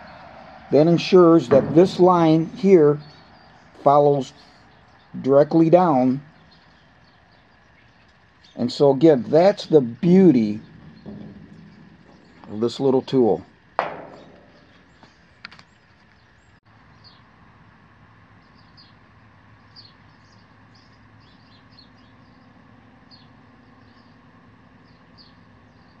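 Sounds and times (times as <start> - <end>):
low steady hum: 0.0 - 25.8
faint bird chirps: 19.6 - 24.2.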